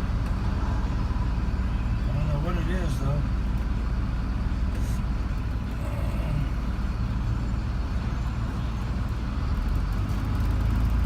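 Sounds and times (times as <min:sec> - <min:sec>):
car engine rumble: 0:00.0 - 0:11.0
road noise: 0:00.0 - 0:11.0.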